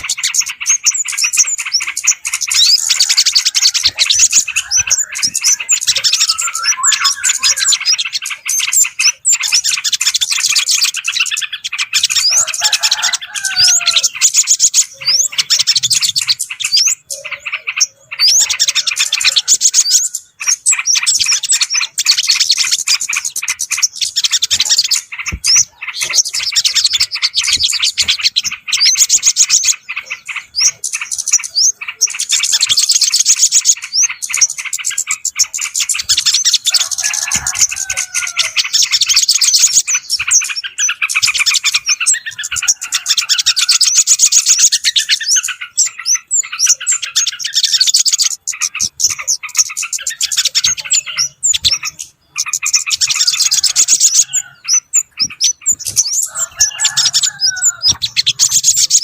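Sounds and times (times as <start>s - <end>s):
lower bubbly bird phrases: 0.0s - 59.0s
small birds chirping: 0.0s - 59.0s.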